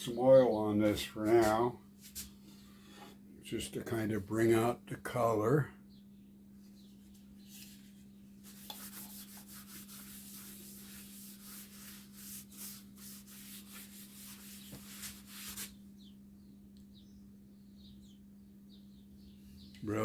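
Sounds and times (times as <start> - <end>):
low electrical hum: 0.0 - 20.0
cloth rubbing wooden box: 8.4 - 15.8.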